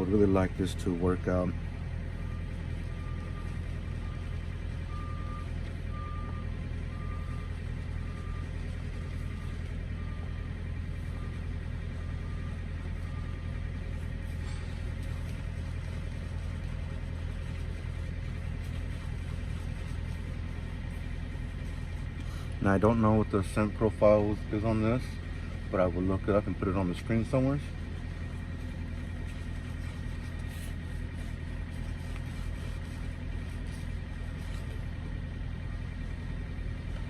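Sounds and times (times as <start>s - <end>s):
truck engine idling: 0.0s - 37.0s
reversing alarm beeping: 2.2s - 13.6s.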